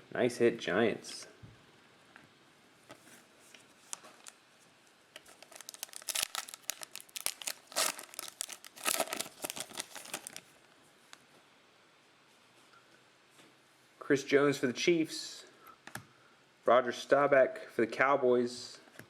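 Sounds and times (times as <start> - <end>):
foil wrapper crinkling and tearing: 3.8 - 4.4, 5.2 - 10.5.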